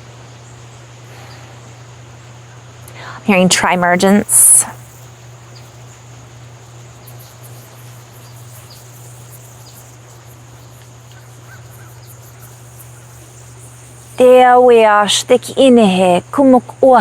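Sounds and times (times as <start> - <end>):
insect drone: 0.0 - 17.0
bird chirps: 3.8 - 14.2
faint crow caws: 11.1 - 12.6.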